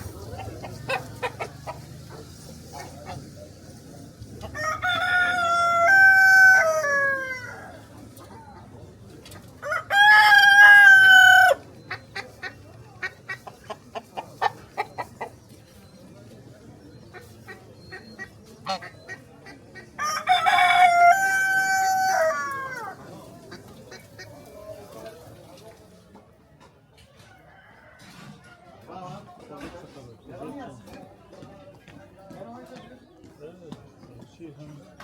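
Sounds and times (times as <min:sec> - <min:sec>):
rooster crowing: 0:04.5 - 0:07.8, 0:09.6 - 0:11.6, 0:20.0 - 0:23.0.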